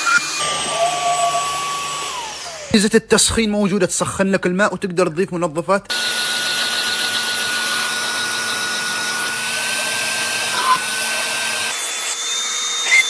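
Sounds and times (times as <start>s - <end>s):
vacuum motor whining: 0.0s - 2.8s, 5.9s - 13.0s.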